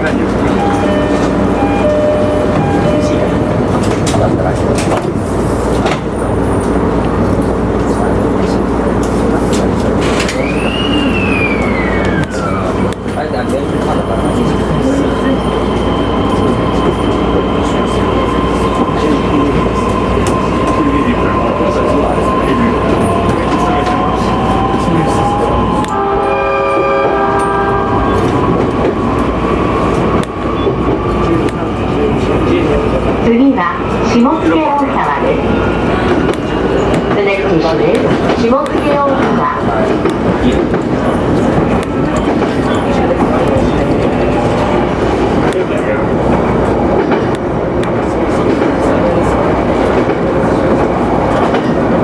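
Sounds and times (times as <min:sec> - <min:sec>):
train rumbling along track: 0:00.0 - 0:52.0
high squeal sliding down: 0:10.3 - 0:12.9
multi-tone train horn blast: 0:25.8 - 0:28.3.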